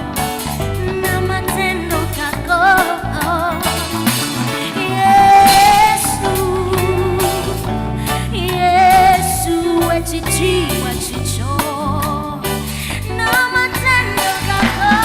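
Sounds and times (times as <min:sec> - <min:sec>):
gospel band playing: 0:00.0 - 0:15.0
person singing long notes: 0:00.8 - 0:07.7.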